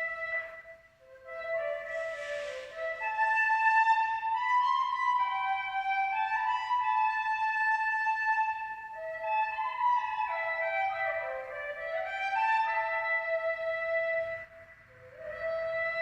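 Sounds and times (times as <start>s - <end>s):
slow instrumental music: 0.0s - 16.0s
breathy hiss: 1.8s - 3.0s.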